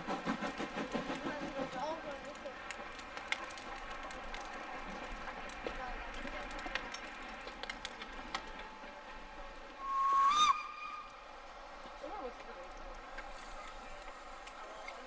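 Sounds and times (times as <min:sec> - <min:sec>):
small clicks and knocks: 0:02.3 - 0:08.7
steam locomotive whistle: 0:09.8 - 0:11.4.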